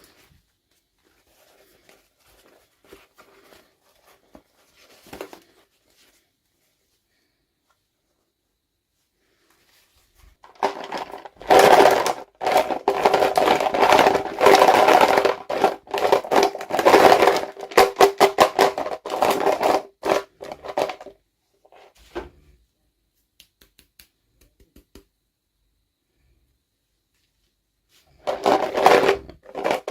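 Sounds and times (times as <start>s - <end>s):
plastic packaging crinkling: 10.4s - 21.1s, 28.2s - 29.9s.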